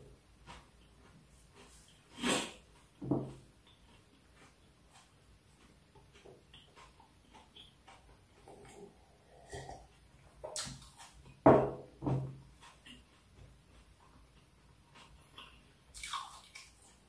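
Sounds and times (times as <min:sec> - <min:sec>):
man chewing: 0:00.0 - 0:11.4, 0:12.4 - 0:17.0
nasal breathing: 0:08.4 - 0:09.9.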